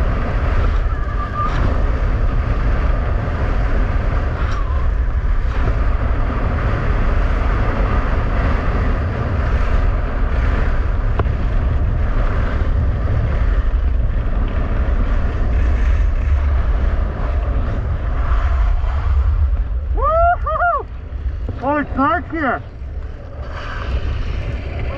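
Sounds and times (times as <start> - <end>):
wind buffeting microphone: 0.0 - 24.9
skis scraping on ice: 21.4 - 24.9.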